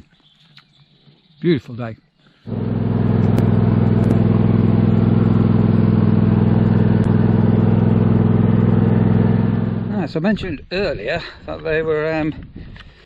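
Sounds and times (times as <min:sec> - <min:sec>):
tractor engine idling: 0:02.5 - 0:10.2.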